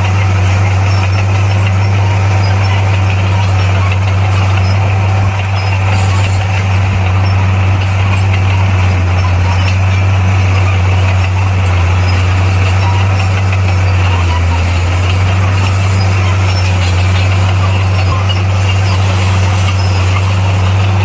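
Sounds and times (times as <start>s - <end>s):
heavy diesel engine droning: 0.0s - 21.0s.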